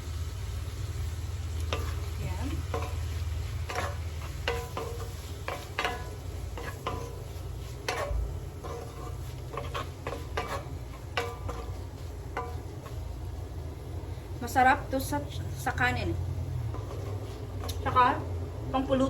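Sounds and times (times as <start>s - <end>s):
low steady hum: 0.0s - 19.0s
metal utensil scraping a frying pan: 1.7s - 13.2s, 16.6s - 18.2s.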